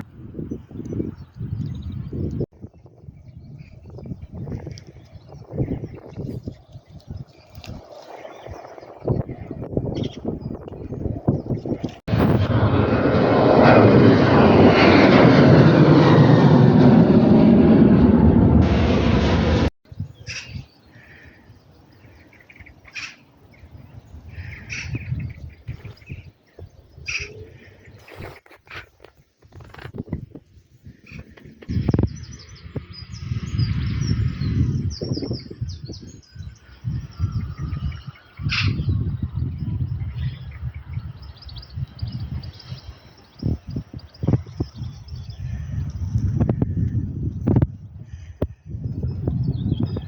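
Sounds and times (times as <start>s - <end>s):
aircraft engines roaring past: 0.1s - 19.7s, 30.4s - 50.0s
small birds chirping: 0.4s - 12.1s, 19.9s - 28.9s, 30.5s - 46.5s
loud uneven low rumble: 12.0s - 19.7s.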